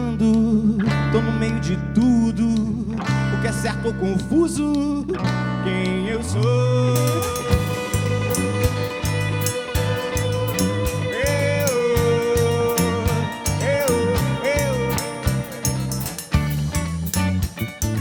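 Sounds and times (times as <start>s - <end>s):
bass guitar: 0.0s - 18.0s
lead guitar bending notes: 0.0s - 18.0s
drums: 6.9s - 18.0s.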